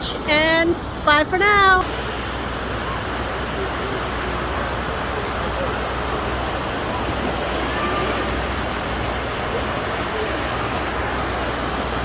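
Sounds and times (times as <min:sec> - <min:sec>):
steady wash of beach noise: 0:00.0 - 0:12.0
faint distant voices: 0:02.4 - 0:12.0.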